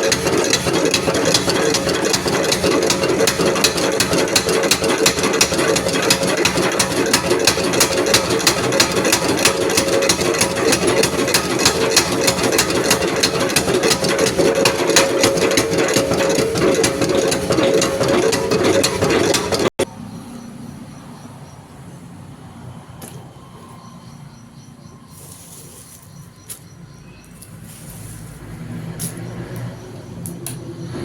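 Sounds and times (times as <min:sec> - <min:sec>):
fast even ticking: 0:00.0 - 0:19.8
machine humming: 0:00.0 - 0:19.8.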